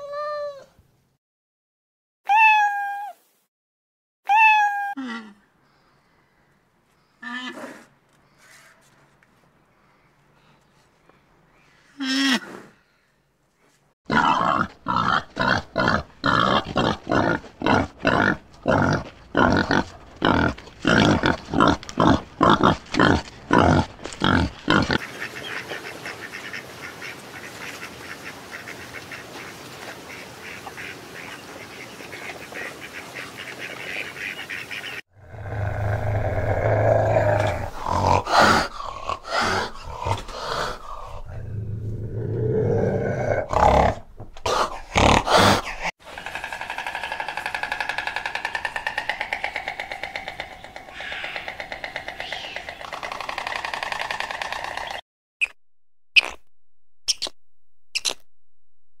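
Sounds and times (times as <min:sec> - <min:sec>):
wild boars grunting: 0:14.1 - 0:25.1, 0:35.2 - 0:54.6
low animal growling: 0:35.2 - 0:47.1.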